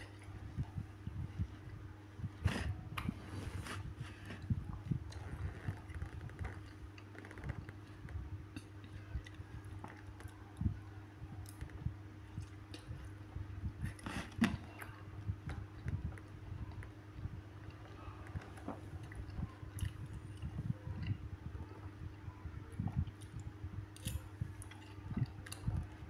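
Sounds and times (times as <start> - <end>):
wet chewing sounds: 1.7 - 10.4, 17.6 - 21.2.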